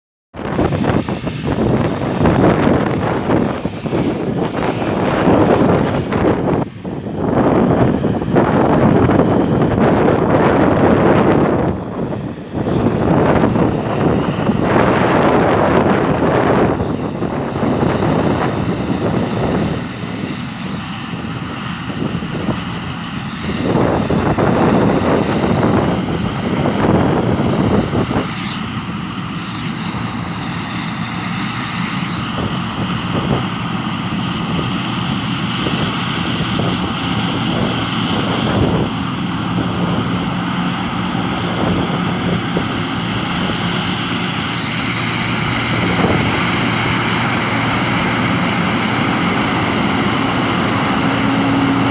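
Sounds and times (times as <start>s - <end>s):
combine harvester engine running: 0.4s - 51.9s
tractor engine running: 0.4s - 51.9s
wind buffeting microphone: 0.4s - 51.9s.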